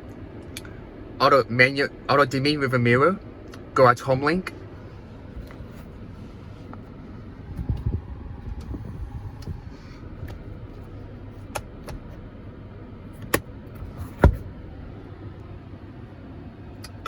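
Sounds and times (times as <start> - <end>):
car engine idling hum: 0.0 - 17.0
interior switches clicking: 10.2 - 10.8, 11.4 - 12.2, 13.1 - 14.7, 16.7 - 17.0.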